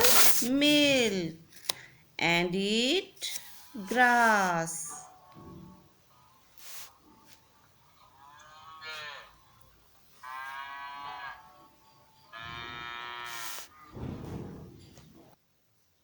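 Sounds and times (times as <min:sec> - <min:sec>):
cow mooing: 0:08.2 - 0:09.4, 0:10.3 - 0:11.6, 0:12.3 - 0:13.6.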